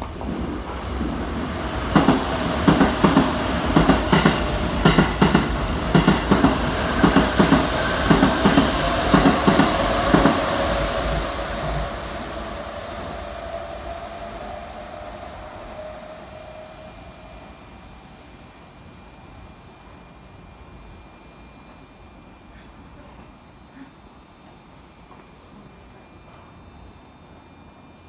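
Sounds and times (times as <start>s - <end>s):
steady train whine: 0.0s - 28.0s
train wheels clacking over joints: 2.0s - 10.4s.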